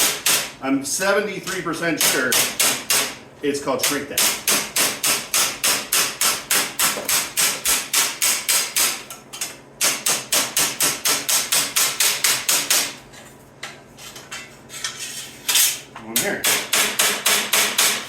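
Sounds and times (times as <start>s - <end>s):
hammer striking sheet metal: 9.8s - 13.0s, 16.4s - 18.0s.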